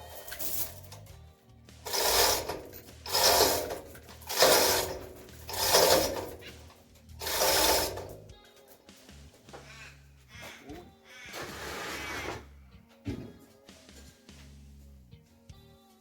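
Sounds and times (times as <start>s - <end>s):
hand tool rasping: 1.8s - 8.2s.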